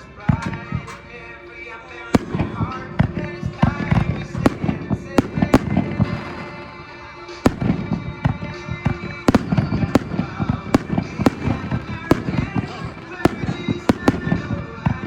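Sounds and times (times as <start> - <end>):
fireworks bursting: 0.0 - 15.0
music playing: 0.0 - 15.0.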